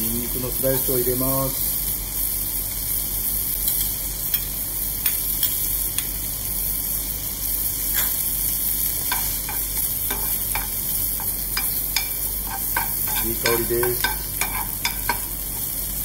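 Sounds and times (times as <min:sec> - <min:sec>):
bacon sizzling in a frying pan: 0:00.0 - 0:16.0
fat crackling and popping: 0:08.7 - 0:16.0.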